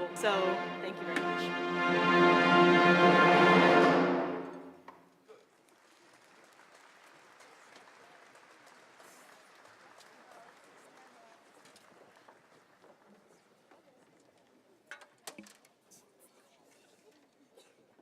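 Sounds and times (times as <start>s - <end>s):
orchestral music: 0.0s - 4.9s.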